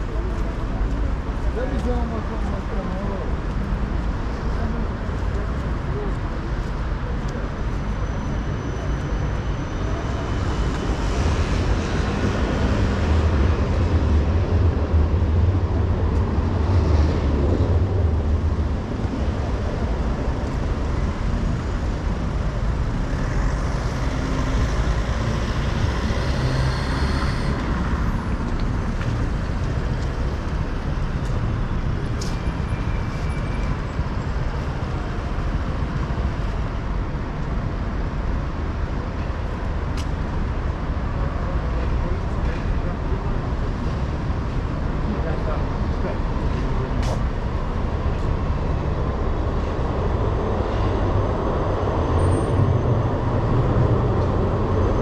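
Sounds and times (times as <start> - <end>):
street traffic: 0.0 - 55.0.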